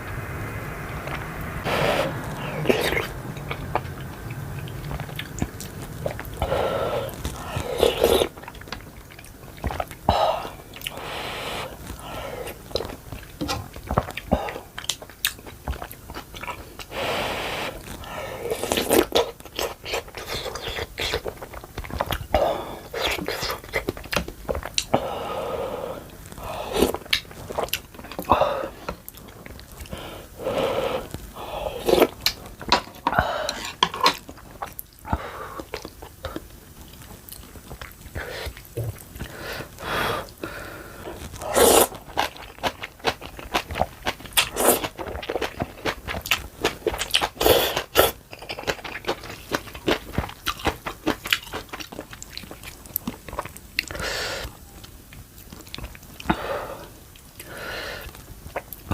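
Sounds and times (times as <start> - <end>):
chewing and biting noodles: 31.0 - 54.0.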